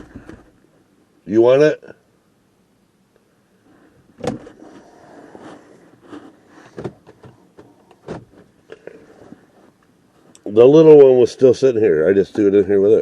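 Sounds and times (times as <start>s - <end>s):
rustling of rummaging: 3.7s - 10.4s.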